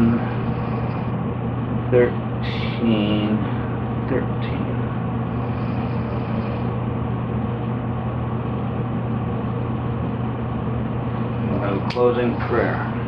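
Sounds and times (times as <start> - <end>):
mechanical drone: 0.0 - 8.3.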